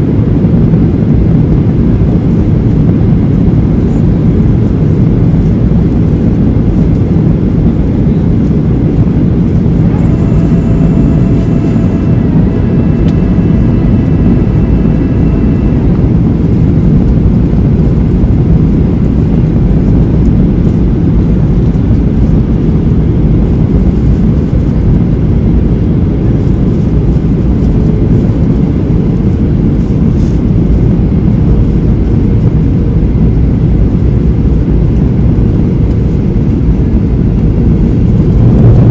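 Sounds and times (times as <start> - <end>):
airplane cabin engine roar: 0.0 - 38.9
faint high steady whine: 0.0 - 38.9.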